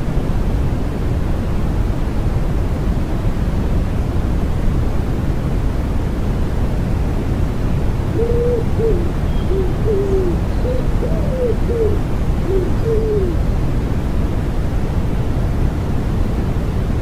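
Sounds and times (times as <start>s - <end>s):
white noise: 0.0s - 17.0s
pigeon cooing: 8.1s - 13.4s.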